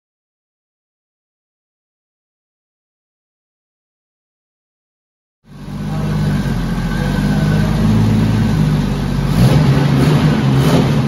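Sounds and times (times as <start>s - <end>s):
car engine running at low revs: 5.5s - 11.0s.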